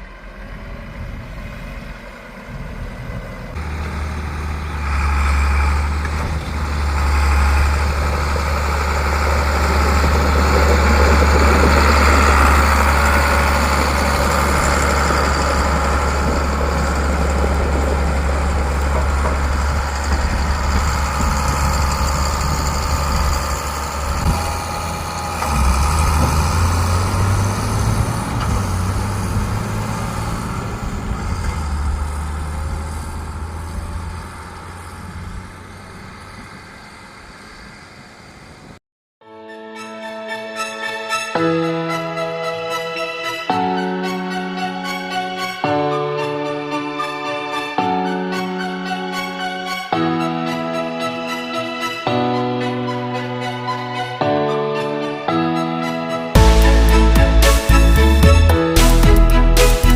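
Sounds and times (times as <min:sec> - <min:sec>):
heavy machinery engine running: 0:00.0 - 0:38.8, 0:56.4 - 0:59.9.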